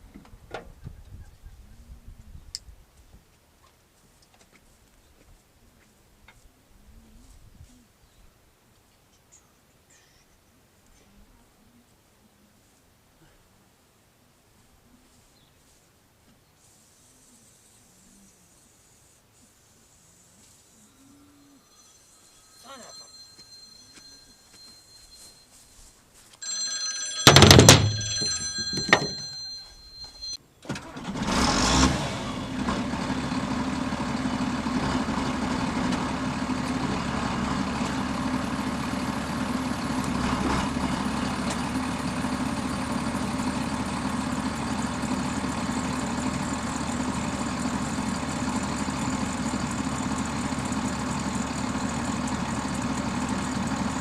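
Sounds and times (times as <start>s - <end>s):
dashboard warning chime: 21.2s - 30.4s
diesel engine idling: 27.2s - 54.0s.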